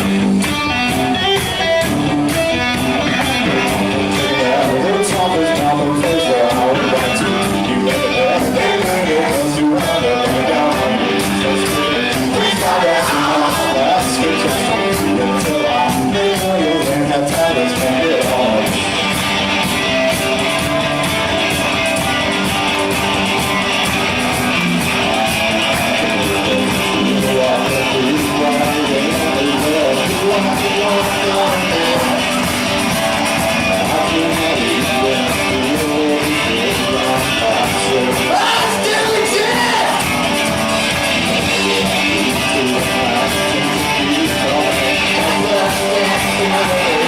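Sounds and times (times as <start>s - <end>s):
live rock band playing: 0.0s - 47.0s.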